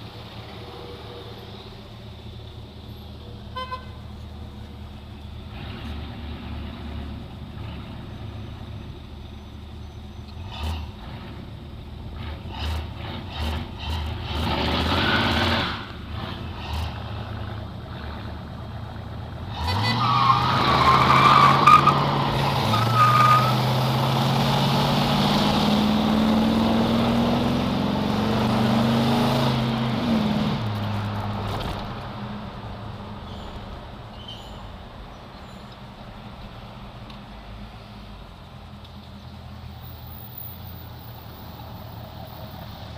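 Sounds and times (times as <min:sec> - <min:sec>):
car engines revving: 0:00.0 - 0:42.9
tyre squeal: 0:19.5 - 0:23.7, 0:33.3 - 0:34.7.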